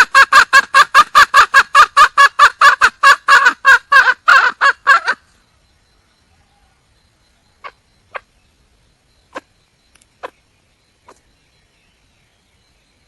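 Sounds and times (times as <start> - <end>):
hen clucking: 0.0 - 5.2, 7.6 - 8.3.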